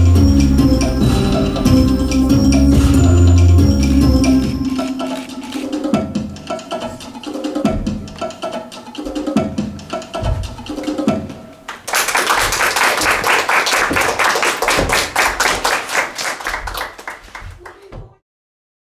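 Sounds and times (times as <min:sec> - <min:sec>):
music: 0:00.0 - 0:15.5
audience applause: 0:11.7 - 0:17.9.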